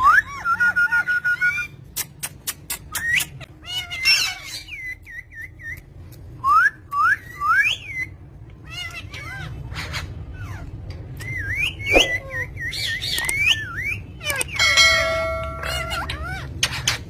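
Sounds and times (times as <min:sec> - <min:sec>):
parakeet whistling and chirping: 0:06.5 - 0:10.6, 0:11.2 - 0:17.0.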